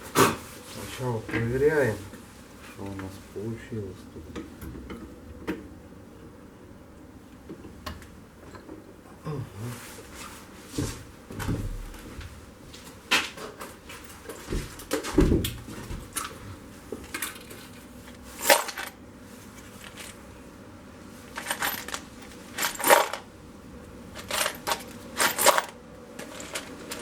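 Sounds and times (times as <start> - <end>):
metal tools clinking: 18.4 - 19.0, 21.4 - 22.0, 22.6 - 23.2, 24.2 - 27.0.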